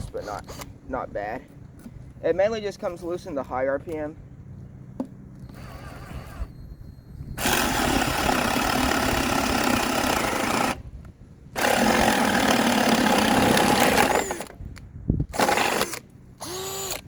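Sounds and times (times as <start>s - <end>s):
cordless drill boring wood: 7.4s - 10.8s, 11.6s - 14.6s, 15.3s - 17.0s.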